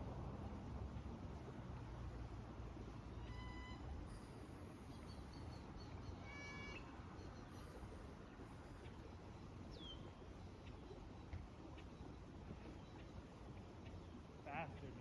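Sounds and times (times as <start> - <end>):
faint animal calls: 6.1 - 7.8.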